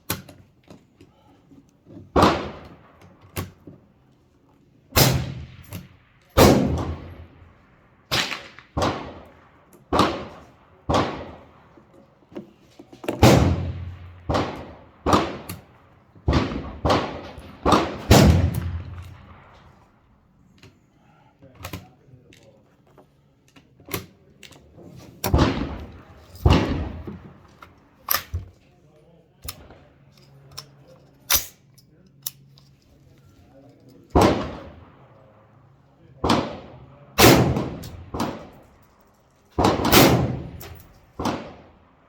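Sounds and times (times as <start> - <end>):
rifle shots with ringing echo: 2.2 - 3.6, 4.9 - 11.8, 13.2 - 20.3, 25.2 - 28.3, 34.1 - 42.0.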